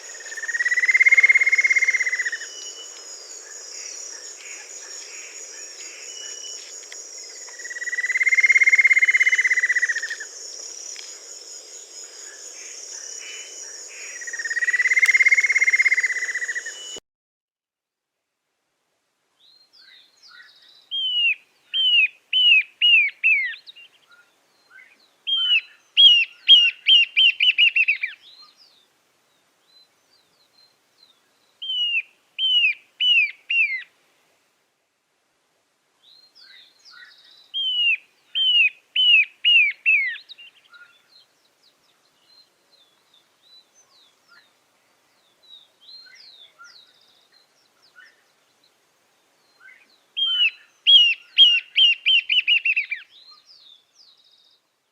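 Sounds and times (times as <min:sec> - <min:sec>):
high insect drone: 0:00.0 - 0:17.0
long bird calls: 0:00.0 - 0:17.0, 0:36.4 - 0:41.1, 0:49.5 - 0:54.2.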